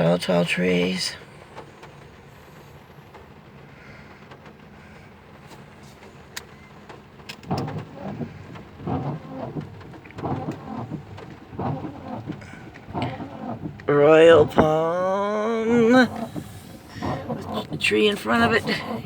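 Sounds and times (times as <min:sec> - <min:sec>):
rain falling on a car: 0:00.0 - 0:19.0
windshield wipers sweeping: 0:00.0 - 0:19.0.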